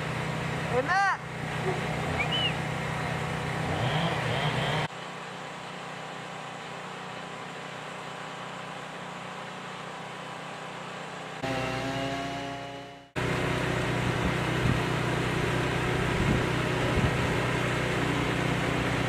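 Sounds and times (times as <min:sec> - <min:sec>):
higher pitched engine: 0:00.0 - 0:04.9, 0:11.4 - 0:19.0
louder machinery noise: 0:00.0 - 0:05.1, 0:09.9 - 0:19.0
machine engine running: 0:00.0 - 0:19.0.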